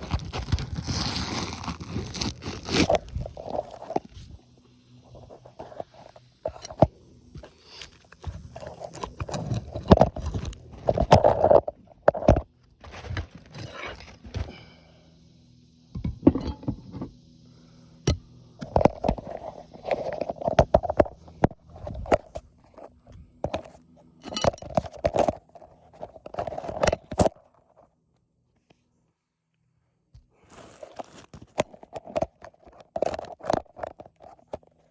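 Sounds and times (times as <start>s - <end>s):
hand work on shingle roof: 0.0s - 4.3s, 5.3s - 14.8s, 30.2s - 34.7s.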